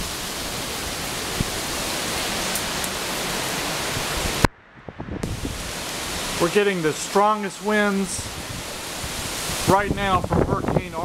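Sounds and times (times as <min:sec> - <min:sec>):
hurricane wind rushing: 0:00.0 - 0:11.0.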